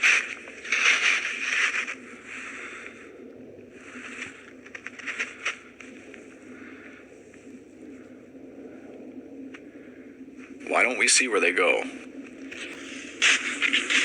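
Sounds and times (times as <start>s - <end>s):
footsteps crunching through snow: 0.0s - 3.0s.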